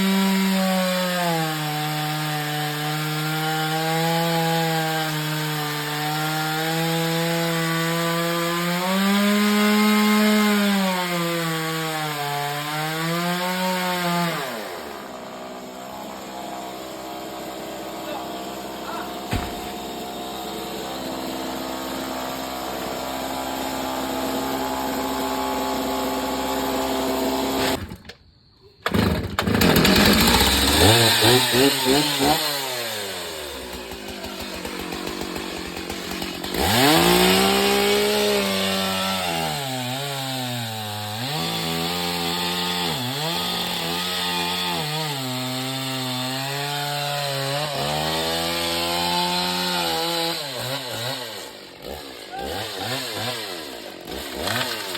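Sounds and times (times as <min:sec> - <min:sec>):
chainsaw revving and cutting wood: 0:00.0 - 0:28.0, 0:28.9 - 0:54.9.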